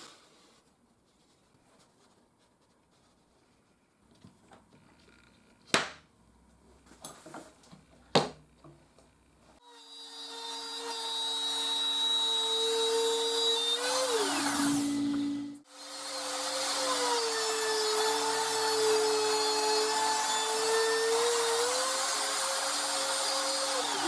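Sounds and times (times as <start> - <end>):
electric power tool whining: 9.7 - 24.0.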